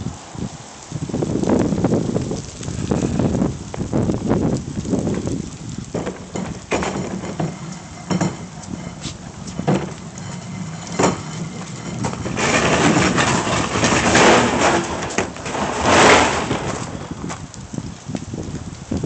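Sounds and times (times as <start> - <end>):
wind buffeting microphone: 0.0 - 19.0
knocks and rattles: 4.9 - 17.4.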